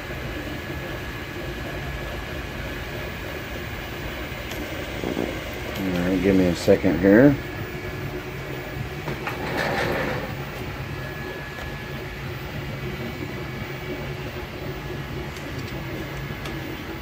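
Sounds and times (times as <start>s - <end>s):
brief loud printer noise: 9.3s - 10.4s.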